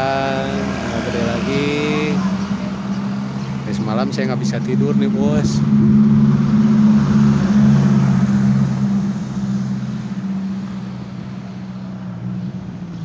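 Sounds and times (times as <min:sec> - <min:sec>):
strong wind gusting: 0:00.0 - 0:10.4.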